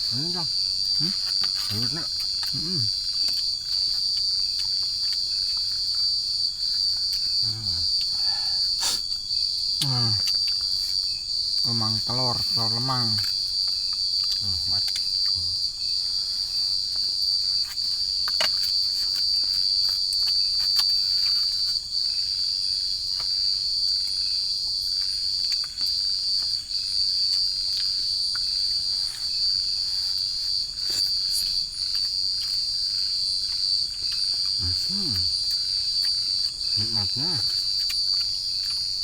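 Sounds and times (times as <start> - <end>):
insects chirping in chorus: 0.0 - 39.0.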